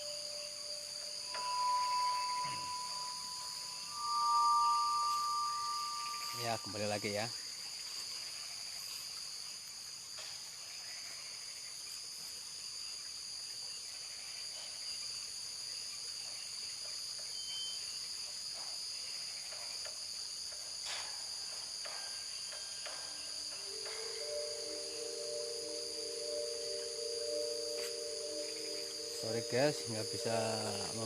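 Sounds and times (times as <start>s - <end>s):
held musical tones: 0.0s - 7.1s, 23.6s - 31.0s
crickets chirping: 0.0s - 31.0s.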